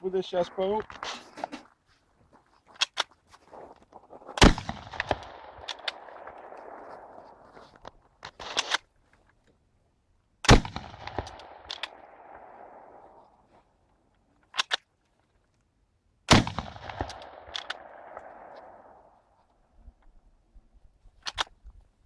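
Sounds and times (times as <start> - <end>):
rifle shot with echo: 4.4 - 7.5, 10.4 - 13.4, 16.3 - 19.4
rifle bolt clicks: 4.9 - 6.8, 10.4 - 12.1, 14.4 - 14.9, 16.8 - 18.7, 21.2 - 21.6.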